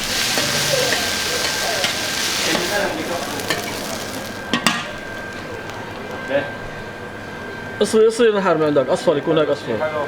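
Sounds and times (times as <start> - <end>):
food sizzling in hot oil: 0.0 - 6.1.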